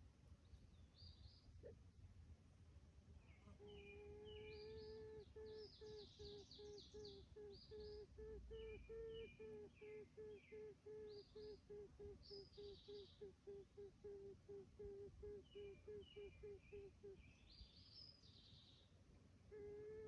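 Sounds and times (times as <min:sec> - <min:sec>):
faint pulsing hum: 0:00.0 - 0:20.0
small birds chirping: 0:03.2 - 0:11.6, 0:12.2 - 0:13.3.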